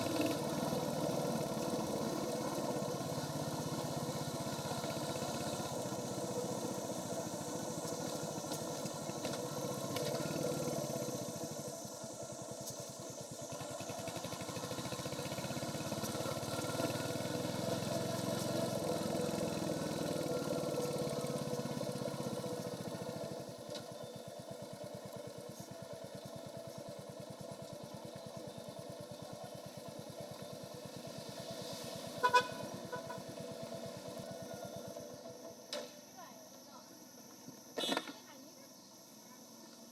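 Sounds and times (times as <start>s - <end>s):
motorcycle engine running: 0.0s - 35.7s
horn beeping: 32.2s - 33.4s.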